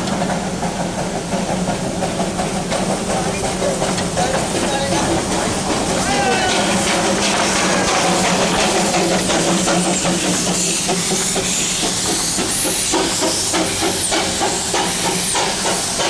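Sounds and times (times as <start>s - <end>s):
steam locomotive hissing: 0.0s - 16.0s.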